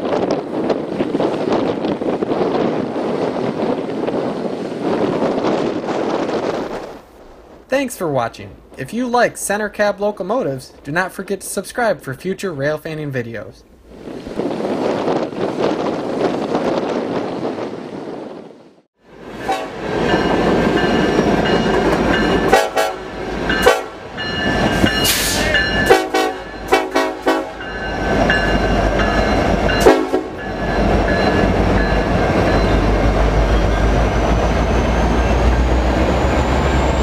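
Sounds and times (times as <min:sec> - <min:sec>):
train rumble: 0:13.8 - 0:37.0
train horn held tones: 0:19.4 - 0:19.8, 0:22.5 - 0:24.1, 0:25.1 - 0:27.8, 0:29.8 - 0:30.4.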